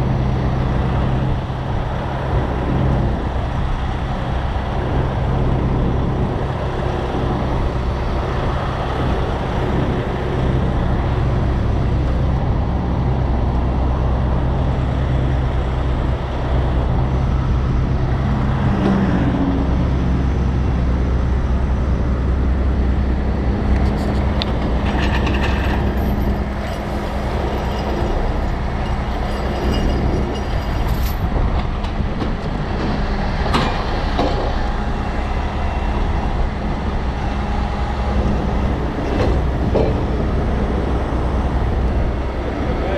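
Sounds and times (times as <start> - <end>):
diesel truck engine running: 0.0 - 42.9
metallic knocks: 24.3 - 32.0.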